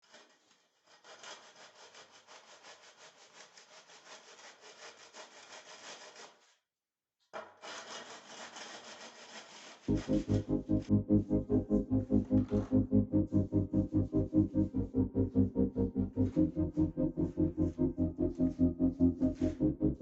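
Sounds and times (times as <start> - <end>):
hand tool scraping wet screed: 0.0 - 6.5, 7.6 - 10.0
music: 9.9 - 20.0.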